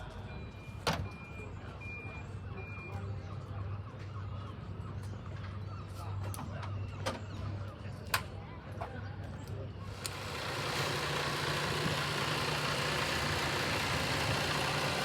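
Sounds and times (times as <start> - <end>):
vehicle reversing alarm beeping: 0.0 - 4.9, 10.1 - 15.0
low engine rumble: 1.1 - 15.0.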